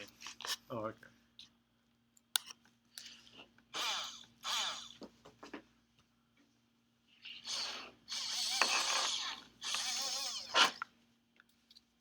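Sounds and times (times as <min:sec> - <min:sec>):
small motors whirring: 0:07.5 - 0:10.8.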